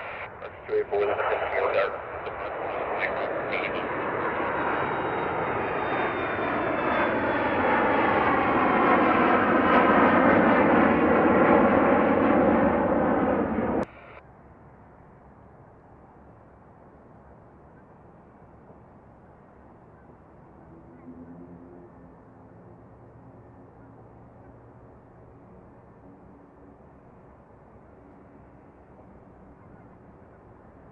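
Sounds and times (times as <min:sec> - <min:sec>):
airplane engine: 0:00.0 - 0:30.9.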